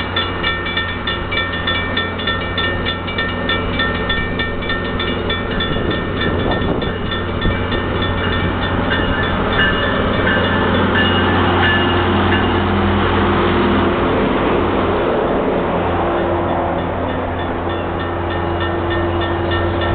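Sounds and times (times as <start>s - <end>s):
bell ringing rapidly: 0.0s - 12.6s
train humming: 0.0s - 19.9s.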